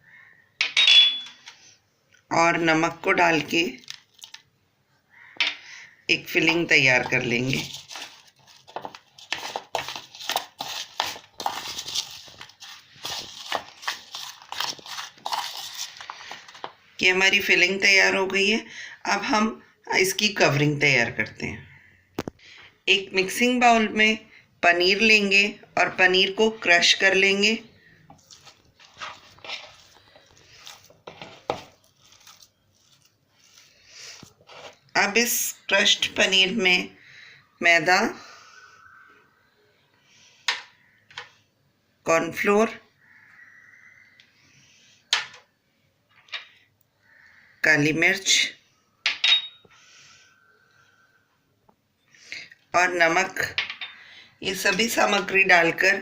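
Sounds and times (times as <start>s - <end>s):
cheese crumbling and squishing by hand: 3.5s - 4.6s, 7.0s - 16.8s, 28.0s - 35.0s
soft crunching: 7.1s - 16.8s, 28.0s - 35.0s
spoon clinking and scraping bowl: 28.2s - 33.6s.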